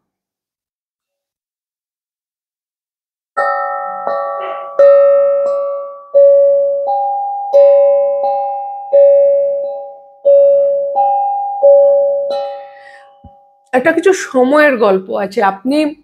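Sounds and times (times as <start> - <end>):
two-note bell chime: 3.4 - 13.6.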